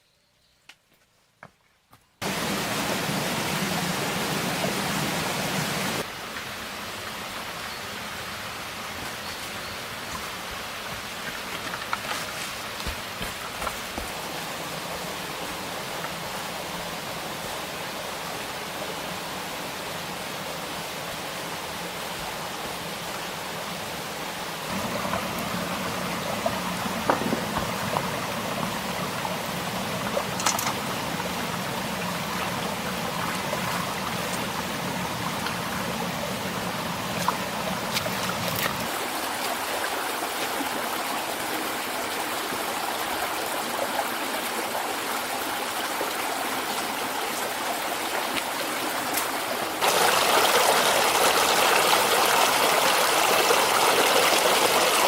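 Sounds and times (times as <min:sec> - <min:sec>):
stream water flowing: 0:02.2 - 0:55.0.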